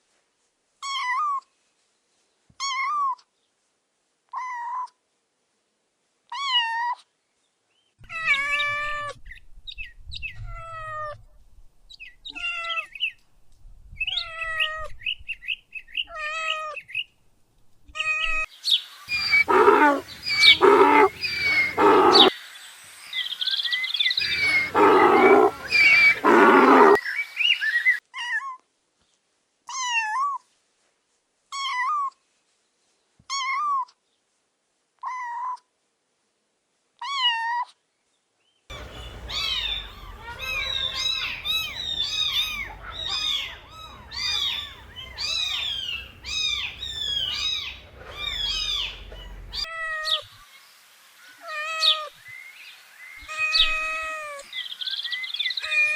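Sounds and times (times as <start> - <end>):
young animals crying: 19.1 - 22.3, 24.2 - 27.0, 38.7 - 49.7.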